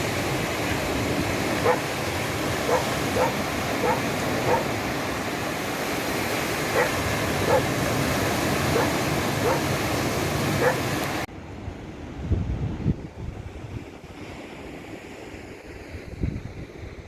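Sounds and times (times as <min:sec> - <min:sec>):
surf: 0:00.0 - 0:11.3
wind: 0:00.0 - 0:17.0
dog barking: 0:01.6 - 0:02.0, 0:02.6 - 0:04.8, 0:06.7 - 0:07.8, 0:08.7 - 0:09.8, 0:10.6 - 0:10.9.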